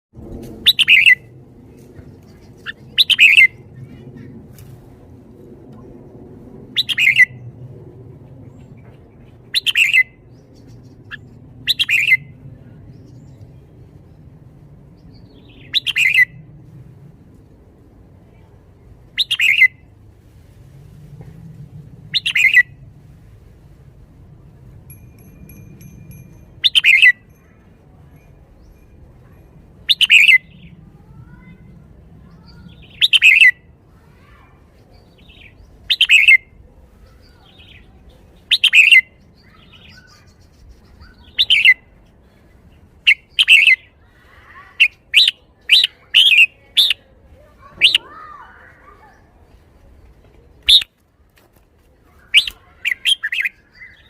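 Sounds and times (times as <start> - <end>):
bulbul whistled song: 0.7 - 1.3, 15.4 - 16.4, 24.9 - 27.3, 29.9 - 30.7, 32.7 - 33.6, 35.3 - 36.5, 38.5 - 39.2, 43.1 - 43.9, 50.6 - 50.9, 52.4 - 54.0.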